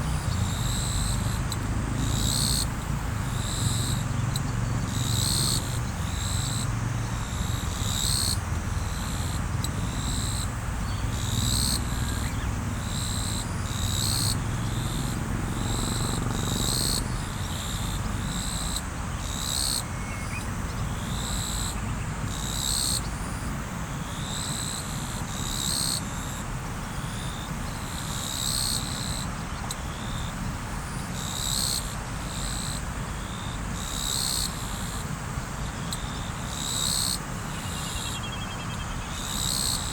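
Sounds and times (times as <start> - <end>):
high chirping call: 10.1 - 17.0.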